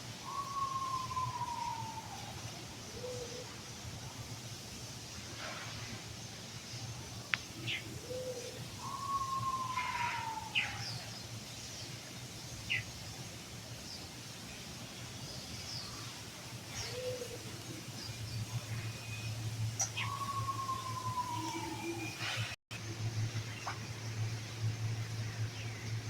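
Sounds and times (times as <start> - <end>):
long falling bird whistle: 0.2 - 2.3, 18.9 - 22.2
steady low hum: 16.0 - 26.0.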